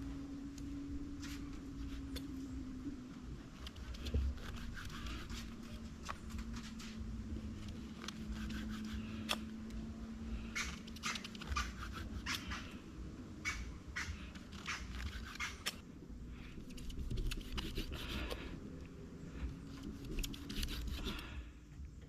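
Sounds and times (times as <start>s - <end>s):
steady low hum: 0.0s - 22.0s
knife cutting rubber: 3.6s - 6.2s, 19.7s - 21.2s.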